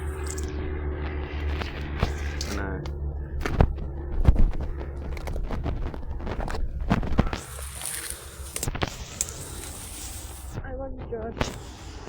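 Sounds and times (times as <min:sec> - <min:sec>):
footsteps crunching through undergrowth: 0:00.0 - 0:00.5, 0:03.2 - 0:10.6
twigs snapping: 0:00.0 - 0:00.5, 0:01.3 - 0:10.6
high rustling hiss: 0:06.2 - 0:10.6, 0:11.4 - 0:12.0.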